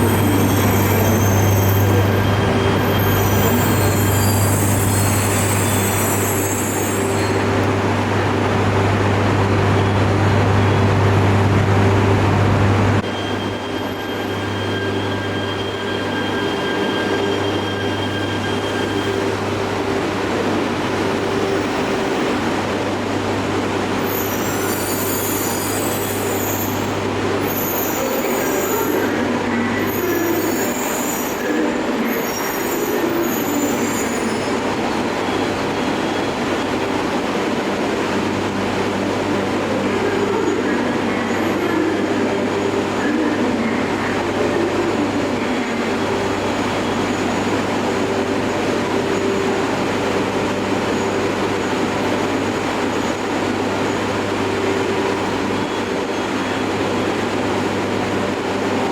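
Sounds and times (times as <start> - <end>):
high-pitched wheel squeal: 0.0 - 7.6, 24.0 - 29.2, 29.8 - 34.6
train running hum: 0.0 - 58.9.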